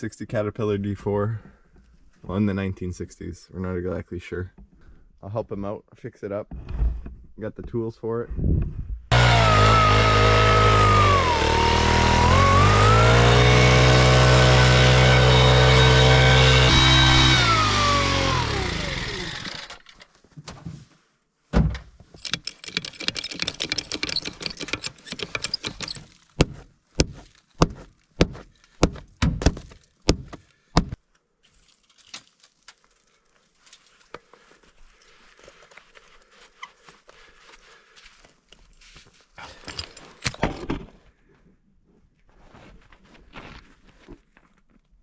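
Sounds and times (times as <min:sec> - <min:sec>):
engine running and shutting off: 0:09.1 - 0:20.0.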